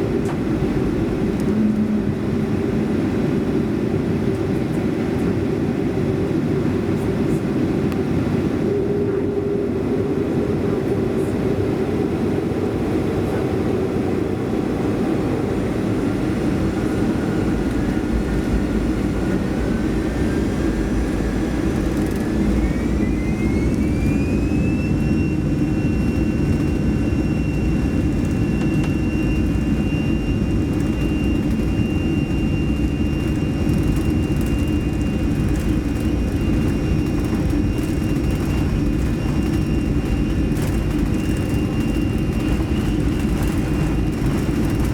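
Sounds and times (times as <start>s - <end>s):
jet engines spooling up: 0.0s - 44.9s.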